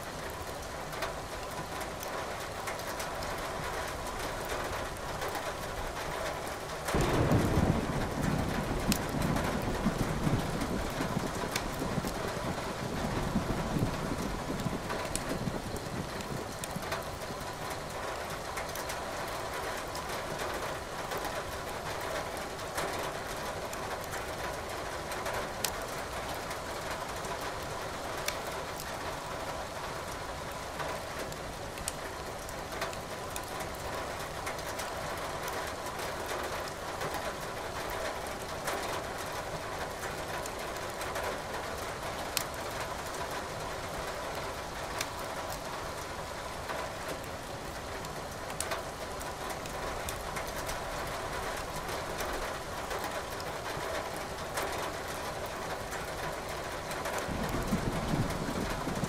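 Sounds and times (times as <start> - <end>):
steady rain: 0.0 - 59.0
wood fire crackling: 6.6 - 18.9.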